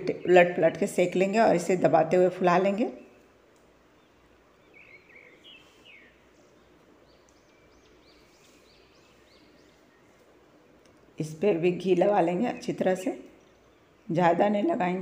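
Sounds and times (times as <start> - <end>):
faint bird chirps: 4.0 - 10.4.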